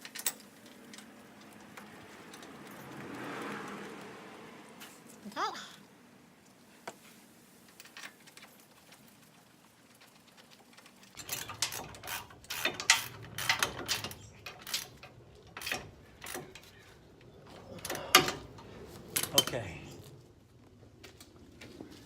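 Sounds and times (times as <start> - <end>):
metal tools clinking on metal: 11.2 - 20.1.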